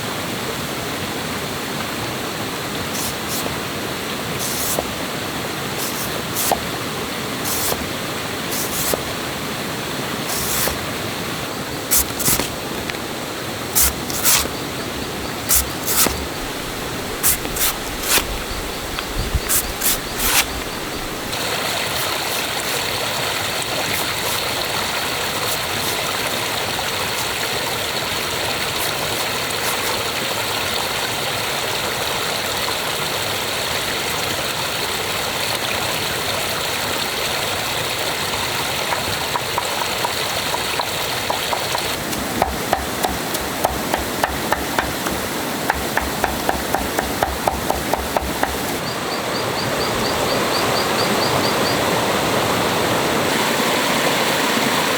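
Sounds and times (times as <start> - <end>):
stream water rushing: 0.0 - 54.9
sharp knocks: 41.3 - 48.8.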